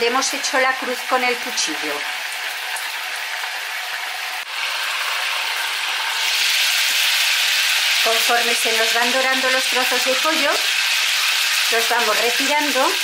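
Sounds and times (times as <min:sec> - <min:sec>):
chicken sizzling in frying pan: 0:00.0 - 0:13.0.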